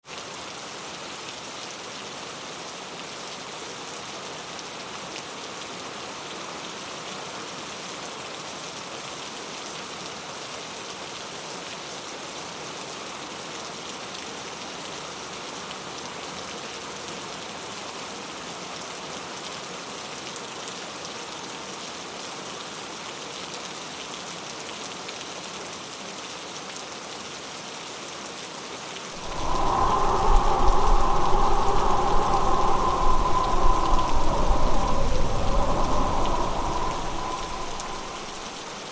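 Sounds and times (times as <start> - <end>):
steady rain falling: 29.2 - 38.9.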